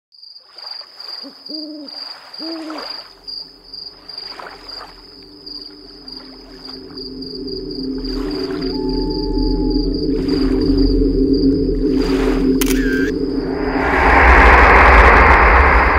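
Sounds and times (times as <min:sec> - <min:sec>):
crickets chirping: 0:00.2 - 0:15.9
owl hooting: 0:01.2 - 0:03.0, 0:07.8 - 0:11.0
low humming drone: 0:03.4 - 0:15.9.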